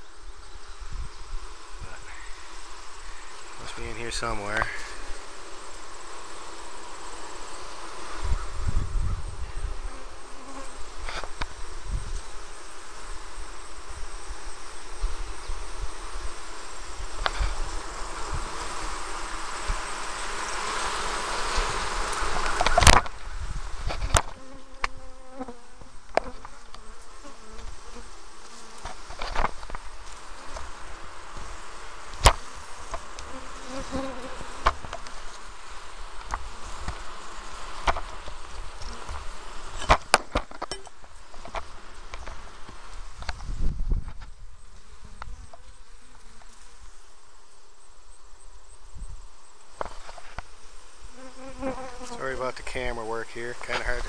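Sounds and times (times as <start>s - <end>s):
honeybees buzzing: 0.0s - 54.0s.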